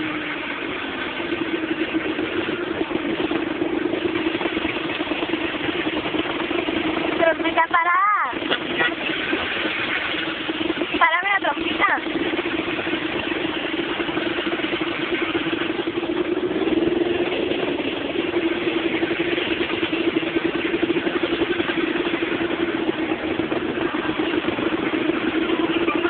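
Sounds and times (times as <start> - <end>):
motorcycle engine hum: 0.0 - 26.0
rushing wind noise: 0.0 - 26.0.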